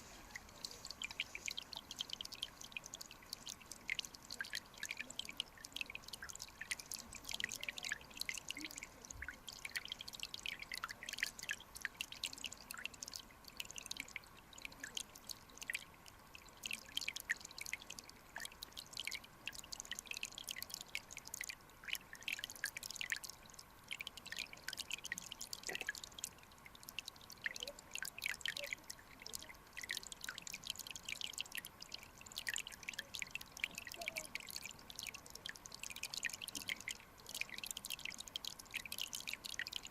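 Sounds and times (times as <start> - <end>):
stream water trickling and dripping: 0.0 - 39.9.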